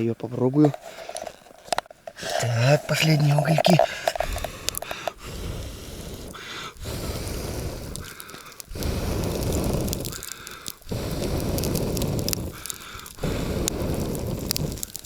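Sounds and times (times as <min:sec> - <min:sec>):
faint crackling coals: 0:00.0 - 0:15.0
person blowing on embers: 0:00.6 - 0:15.0
sharp breath in: 0:00.8 - 0:01.5, 0:03.8 - 0:15.0.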